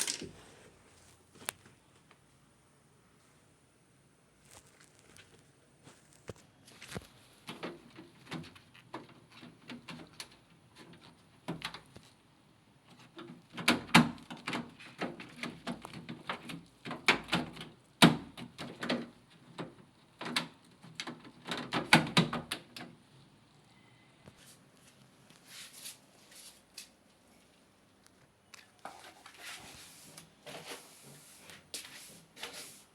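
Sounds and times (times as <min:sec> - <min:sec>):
objects knocking and rattling: 0:00.0 - 0:00.5.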